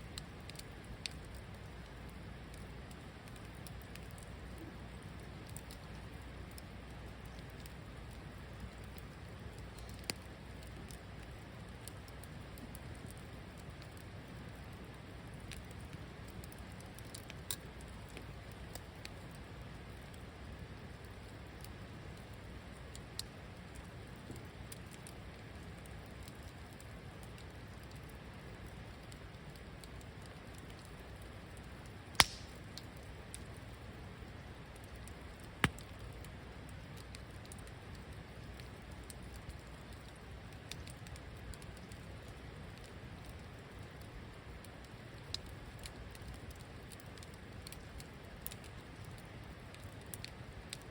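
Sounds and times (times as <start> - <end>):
wood fire crackling: 0.0 - 50.9
loud sharp fire pops: 32.1 - 32.9, 35.6 - 35.9.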